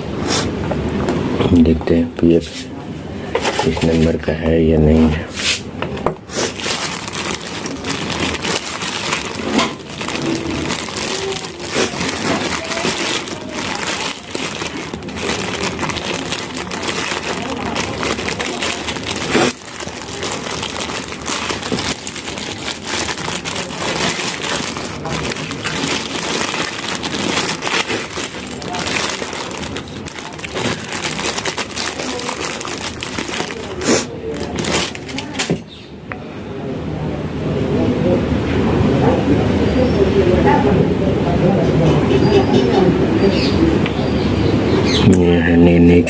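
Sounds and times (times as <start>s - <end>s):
hands rummaging through packets: 6.2s - 35.6s.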